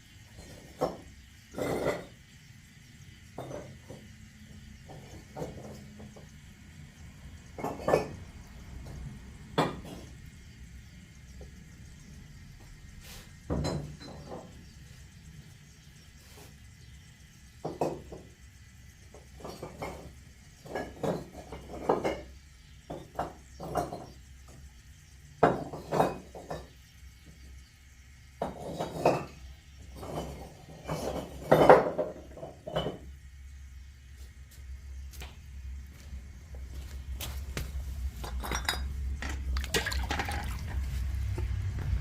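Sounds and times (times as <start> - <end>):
ceramic flowerpots clinking: 0.3 - 2.3, 3.3 - 6.3, 7.4 - 10.2, 13.5 - 14.7, 19.1 - 24.6, 25.4 - 26.8, 28.4 - 33.2, 38.1 - 42.0.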